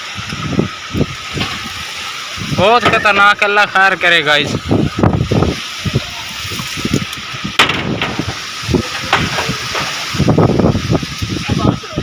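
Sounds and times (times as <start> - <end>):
storm wind buffeting microphone: 0.0 - 12.0
sharp crack: 6.9 - 10.2
low thumps: 6.9 - 11.1.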